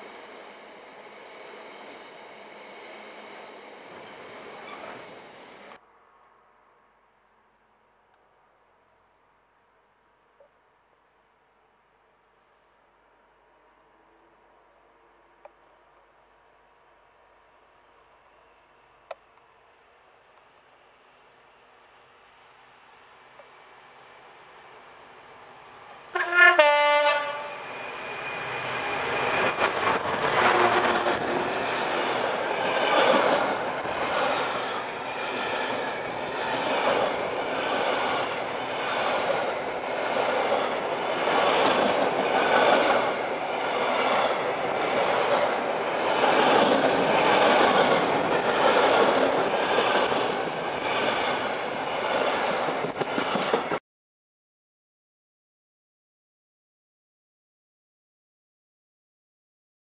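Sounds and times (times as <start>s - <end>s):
two-tone train horn blast: 26.1s - 27.7s.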